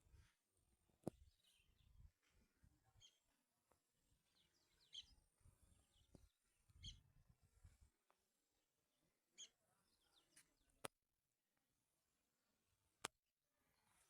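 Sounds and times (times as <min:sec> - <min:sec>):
faint birds chirping: 0:00.1 - 0:10.9.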